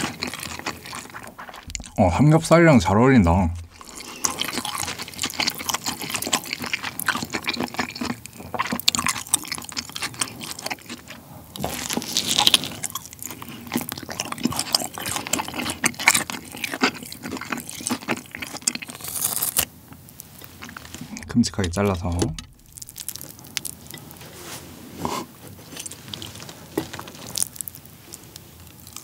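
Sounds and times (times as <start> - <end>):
biting into pork: 0.0 - 2.0, 3.6 - 19.7
close chewing with mouth smacks: 0.0 - 2.0, 3.6 - 21.3, 22.2 - 24.4, 25.0 - 29.0.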